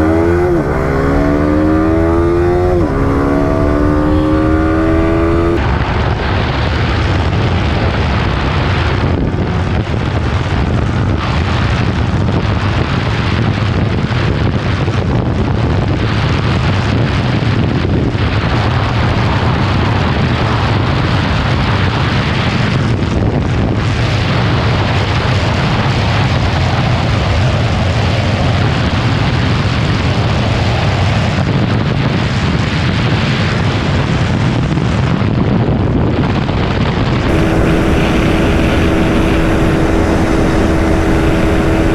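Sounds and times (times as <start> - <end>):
motorcycle at top speed: 0.0 - 12.0, 35.3 - 41.9
wind rush on microphone: 30.8 - 41.9.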